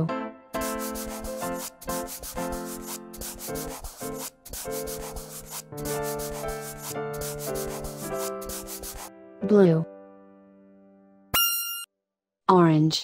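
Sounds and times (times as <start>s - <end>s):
marker scribbling on paper: 0.6s - 9.1s.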